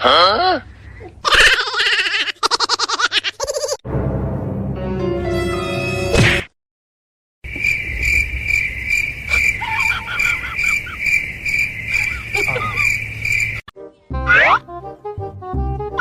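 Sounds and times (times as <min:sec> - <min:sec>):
faint insect chirps: 0:07.5 - 0:13.6
insect trilling: 0:07.5 - 0:13.6.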